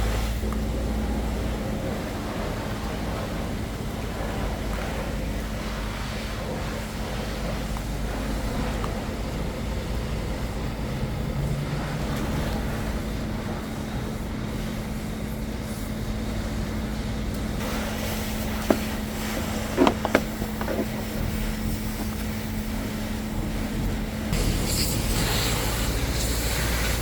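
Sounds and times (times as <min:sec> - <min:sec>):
car wash machinery hum and hiss: 0:00.0 - 0:27.0.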